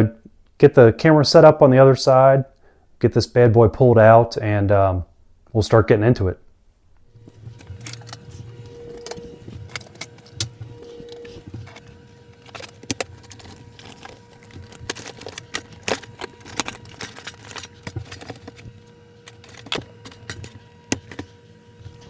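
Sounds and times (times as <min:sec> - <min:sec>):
faint steady hum: 0:00.0 - 0:22.0
equipment clicks and clatter: 0:07.2 - 0:22.0.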